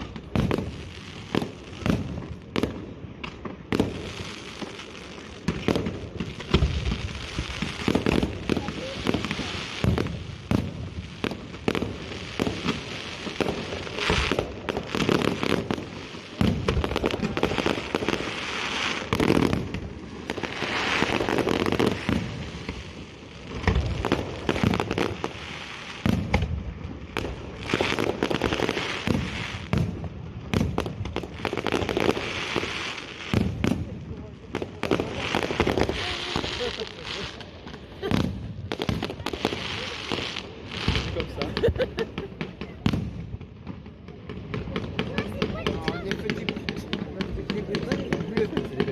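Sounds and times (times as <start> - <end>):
fireworks crackling: 0.0 - 48.9.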